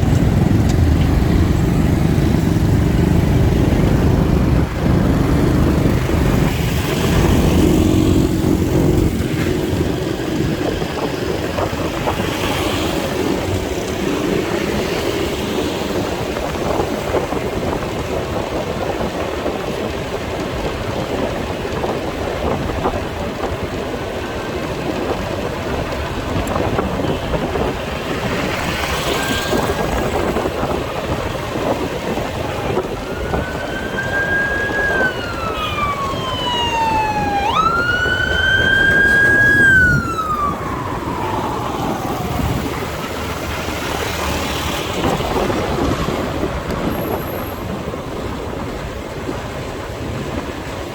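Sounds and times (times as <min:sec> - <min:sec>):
motorcycle engine: 0:00.0 - 0:16.4
wind noise: 0:00.0 - 0:50.9
emergency siren wailing: 0:28.7 - 0:45.2.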